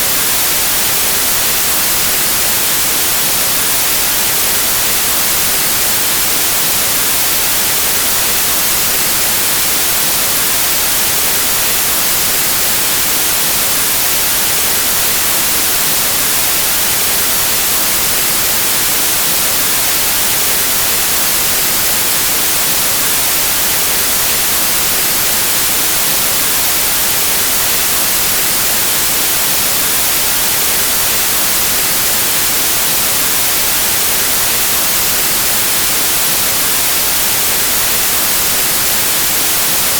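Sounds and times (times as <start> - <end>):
white noise static hiss: 0.0 - 39.9.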